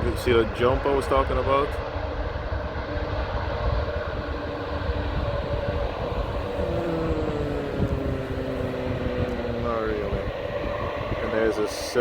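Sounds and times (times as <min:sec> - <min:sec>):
jet engines roaring: 0:00.0 - 0:12.0
faint steady tones: 0:00.2 - 0:12.0.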